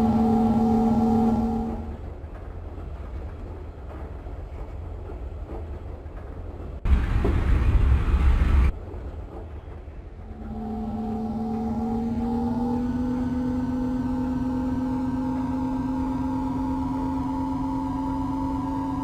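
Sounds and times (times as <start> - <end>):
pitched whine: 0.0 - 2.0, 10.3 - 19.0
train running with low rumble: 0.0 - 19.0.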